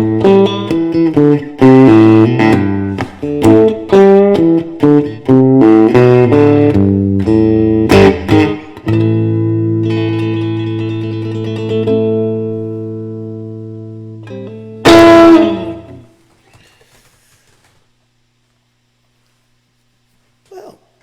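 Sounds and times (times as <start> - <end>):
mellow blues electric guitar: 0.0 - 16.3.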